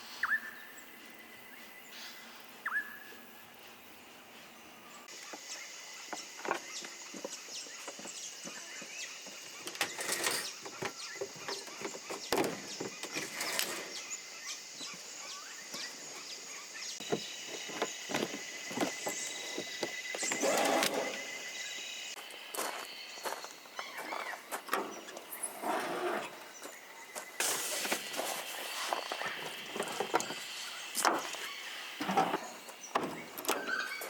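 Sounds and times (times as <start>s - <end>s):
loud scraping: 9.8s - 10.6s, 20.2s - 21.6s, 25.3s - 26.6s.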